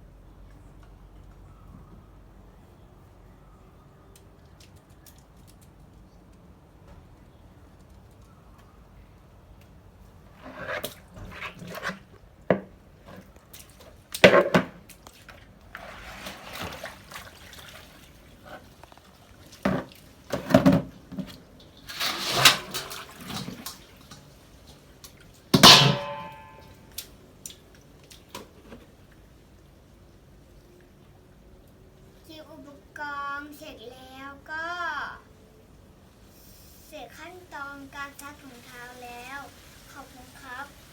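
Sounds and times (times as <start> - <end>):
water splashing and pouring: 13.1 - 28.4, 37.9 - 40.9.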